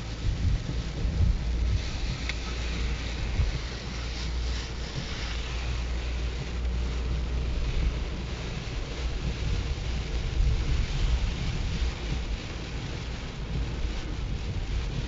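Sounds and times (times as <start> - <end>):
strong wind buffeting microphone: 0.0 - 15.0
wind-driven rain hissing: 0.0 - 15.0.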